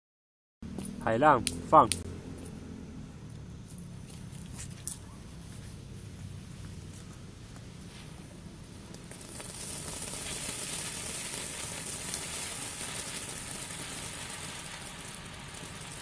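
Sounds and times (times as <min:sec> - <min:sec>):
firework hissing and crackling: 0:04.0 - 0:16.0.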